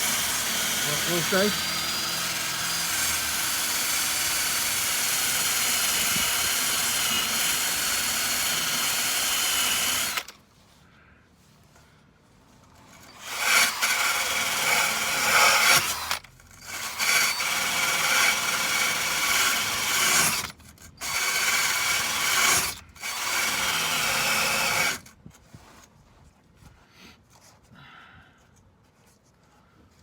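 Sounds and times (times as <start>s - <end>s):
drill wire brush scrubbing metal: 0.0s - 10.3s, 13.0s - 25.0s.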